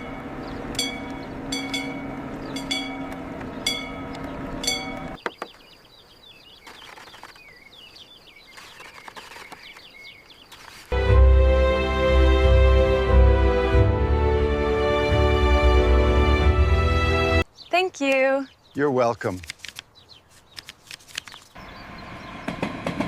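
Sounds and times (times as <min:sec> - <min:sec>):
birdsong chirping: 0:00.0 - 0:11.0, 0:17.3 - 0:23.0
loud music: 0:11.0 - 0:17.4.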